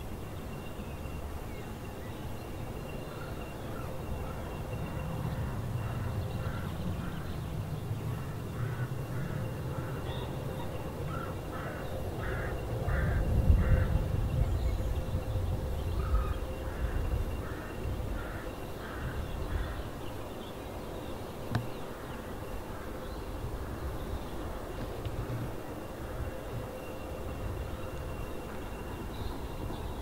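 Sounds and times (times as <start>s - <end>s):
crow cawing: 8.5s - 10.0s, 11.1s - 13.9s, 16.0s - 19.8s.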